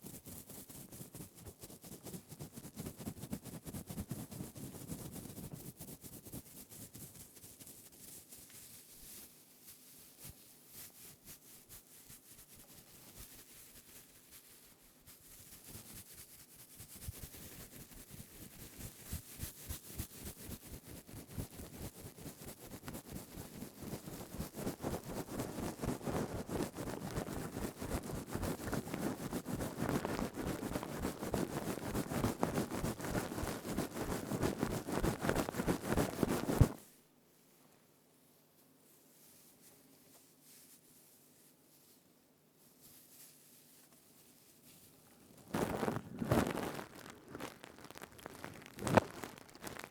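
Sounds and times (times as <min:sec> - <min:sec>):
scouring pad scratching: 0:28.6 - 0:36.8, 0:45.4 - 0:49.9.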